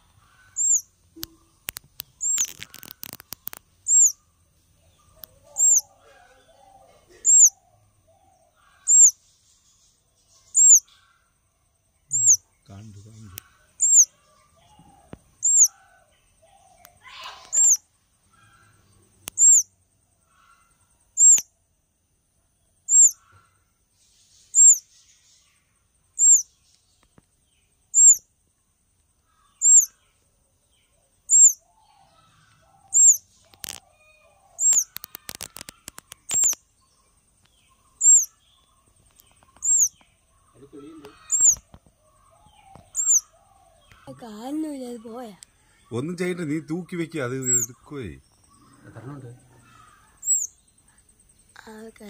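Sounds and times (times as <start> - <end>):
small bird high thin chirp: 0.4 - 4.2, 4.9 - 7.6, 8.7 - 9.2, 9.8 - 11.1, 12.1 - 15.8, 16.7 - 17.8, 19.2 - 19.7, 21.2 - 21.5, 22.9 - 23.4, 24.0 - 25.4, 26.2 - 27.1, 27.9 - 28.3, 29.4 - 30.0, 31.3 - 36.6, 37.4 - 38.5, 39.1 - 41.8, 42.5 - 44.1, 47.4 - 48.4, 50.2 - 50.6
sharp clicks: 1.2 - 4.1, 19.2 - 19.6, 21.2 - 21.5, 34.6 - 36.6.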